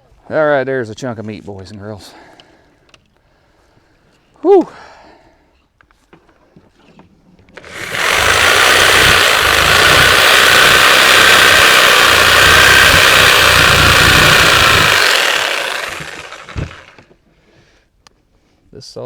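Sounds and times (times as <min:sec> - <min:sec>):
reciprocating saw cutting: 0:07.6 - 0:17.0.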